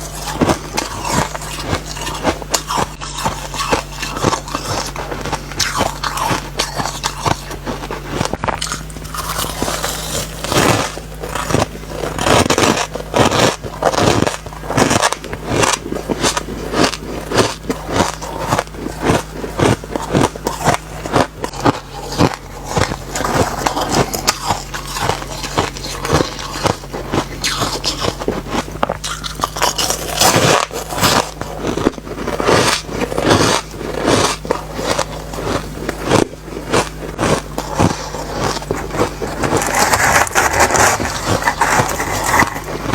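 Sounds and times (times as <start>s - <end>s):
chewing crunchy ice: 0.0s - 42.9s.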